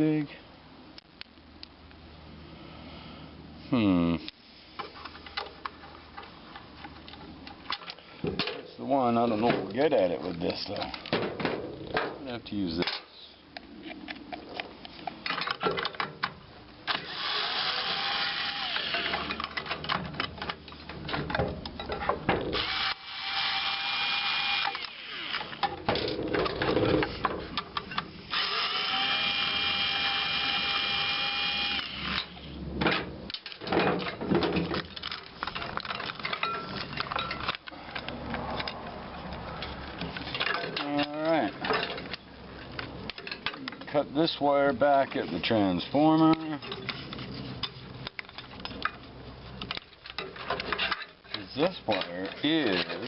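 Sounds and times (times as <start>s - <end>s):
power drill motor whine: 16.9s - 19.3s, 22.6s - 25.6s, 28.3s - 32.3s
metal clinks and knocks: 19.1s - 22.6s, 32.9s - 43.9s, 45.9s - 53.0s.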